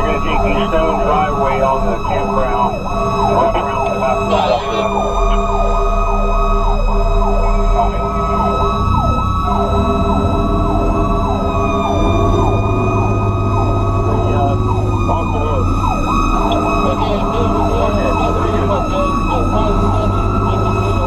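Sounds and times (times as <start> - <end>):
fire truck siren yelping: 0.0 - 21.0
truck engine: 0.0 - 21.0.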